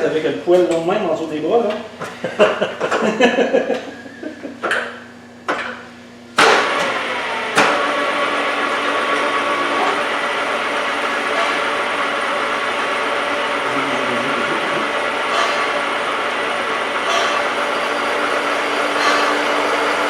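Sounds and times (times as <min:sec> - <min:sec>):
milling machine running: 0:06.4 - 0:20.0.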